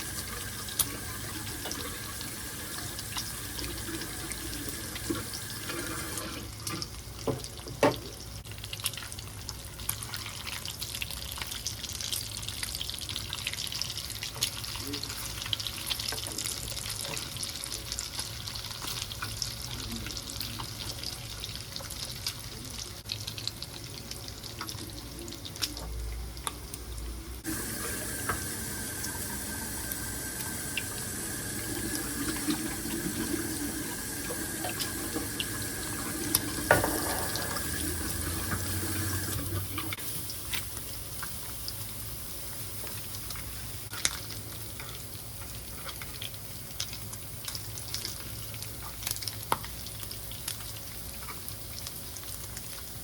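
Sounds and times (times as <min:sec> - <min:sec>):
water running into a sink: 0:00.0 - 0:08.2, 0:27.4 - 0:40.3
bacon sizzling in a frying pan: 0:00.0 - 0:26.8, 0:27.4 - 0:53.0.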